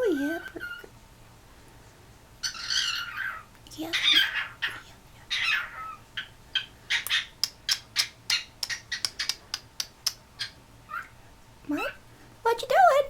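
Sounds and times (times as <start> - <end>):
cockatiel clicking calls: 2.4 - 11.2
cockatiel squawk: 2.4 - 11.2.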